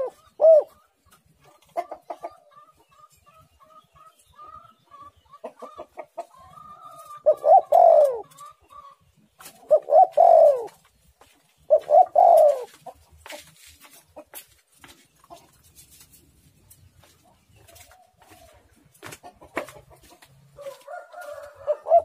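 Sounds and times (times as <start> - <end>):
dove cooing: 0.0 - 1.0, 6.5 - 10.9, 11.7 - 13.0, 20.6 - 22.0.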